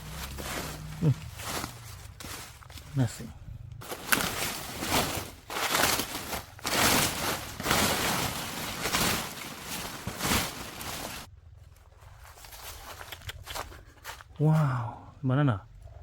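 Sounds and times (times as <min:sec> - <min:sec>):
dry leaves rustling and crunching: 0:00.0 - 0:03.2, 0:03.8 - 0:11.3.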